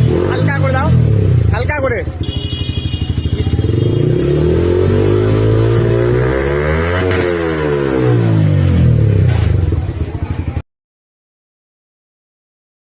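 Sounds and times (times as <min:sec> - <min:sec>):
motorcycle riding past: 0:03.4 - 0:09.3.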